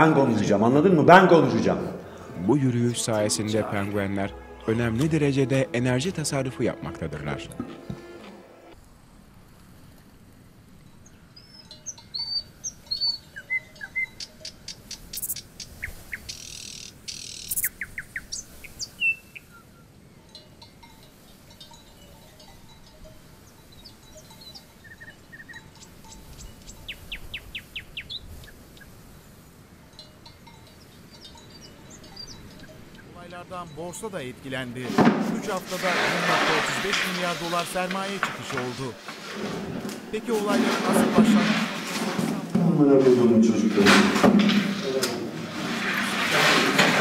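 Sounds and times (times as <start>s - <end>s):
small birds chirping and trilling: 11.0s - 34.2s.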